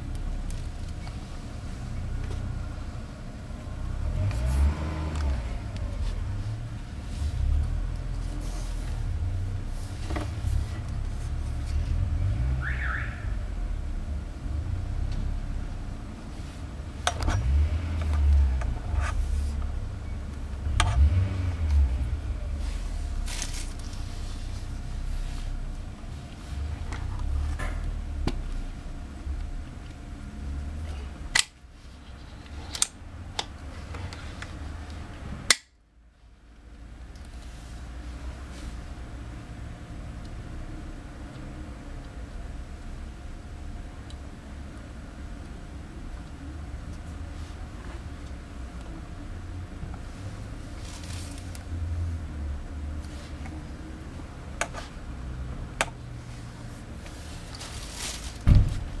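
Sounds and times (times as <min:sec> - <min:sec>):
low background hum: 0:00.0 - 0:59.0
heavy thump: 0:58.4 - 0:59.0.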